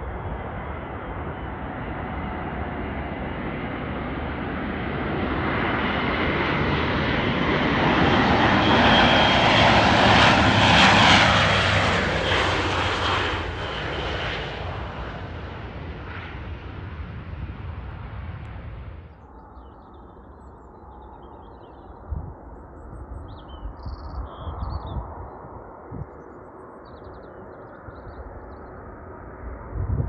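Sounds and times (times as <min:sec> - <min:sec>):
aircraft noise: 0:00.0 - 0:23.8
steady low rumble: 0:09.4 - 0:19.5.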